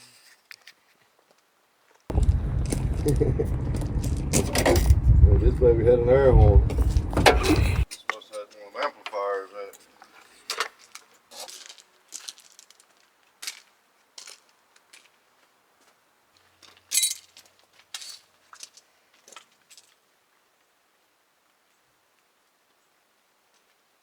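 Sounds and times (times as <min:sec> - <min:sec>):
metal parts and tools clinking: 0:16.9 - 0:17.3.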